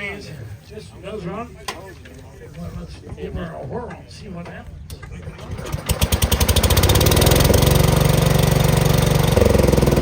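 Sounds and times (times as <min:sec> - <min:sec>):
garden tractor engine running: 0:05.0 - 0:10.0.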